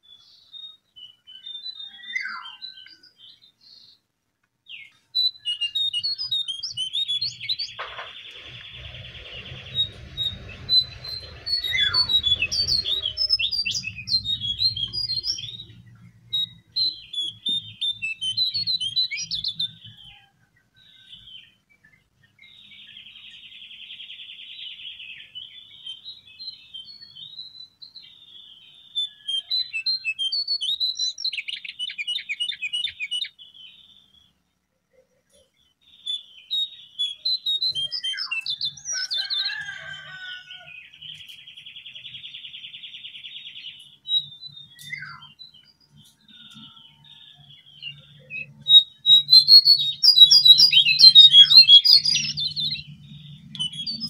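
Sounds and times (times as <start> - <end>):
songbirds chirping and trilling: 0.0 - 54.0
buzzy rapid bird trills: 5.8 - 19.0
low hum: 8.0 - 16.4.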